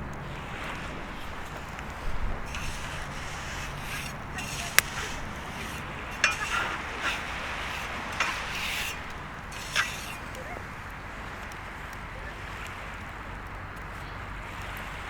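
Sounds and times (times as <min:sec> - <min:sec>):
bonfire crackling: 0:00.0 - 0:12.1
sharp pops: 0:02.5 - 0:10.4.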